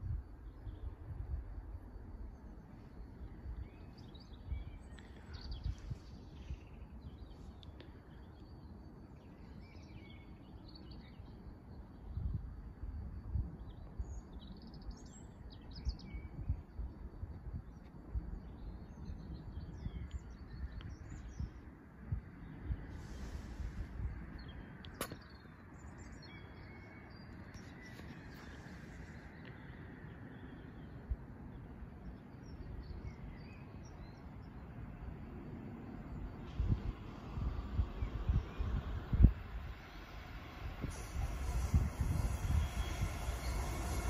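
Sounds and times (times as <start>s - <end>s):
small birds chirping and singing: 2.4s - 11.9s, 24.3s - 34.8s
low uneven rumble: 27.1s - 44.0s.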